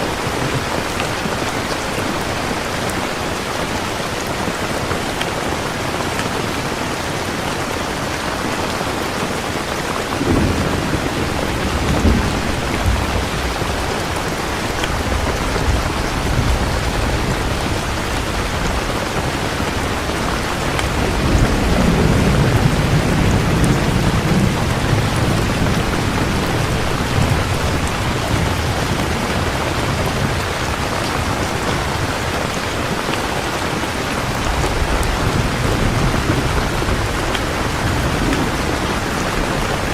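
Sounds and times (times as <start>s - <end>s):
heavy rain: 0.0s - 39.9s
rolling thunder: 10.2s - 32.6s.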